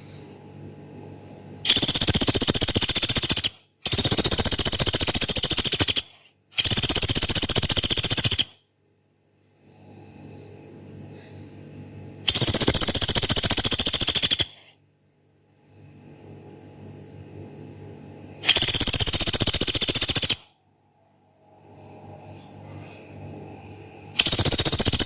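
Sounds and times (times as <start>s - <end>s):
woodpecker rattling calls: 1.7s - 8.5s, 12.3s - 14.6s, 18.4s - 20.4s, 24.2s - 25.0s.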